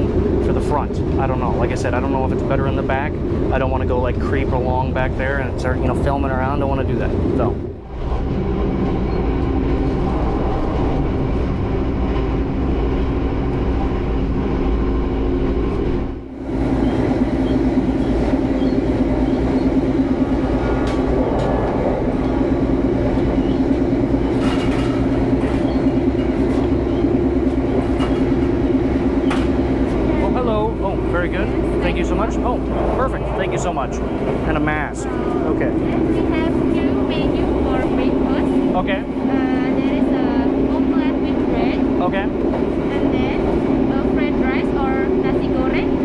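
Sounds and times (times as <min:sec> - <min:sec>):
constant hum: 0:00.0 - 0:46.0
train wheels rumbling on rails: 0:00.0 - 0:46.0.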